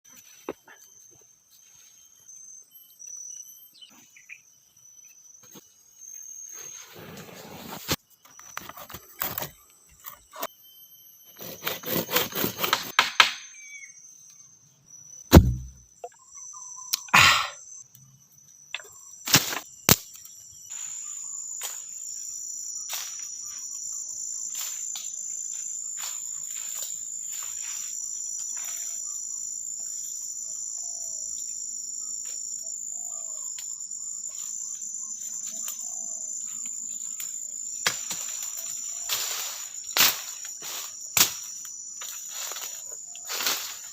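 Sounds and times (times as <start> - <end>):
insects buzzing: 0.1 - 43.9
heavy thump: 15.3 - 15.8.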